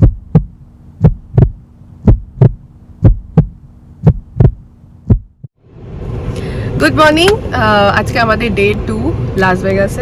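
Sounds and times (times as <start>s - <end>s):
heartbeat double thumps: 0.0s - 5.6s.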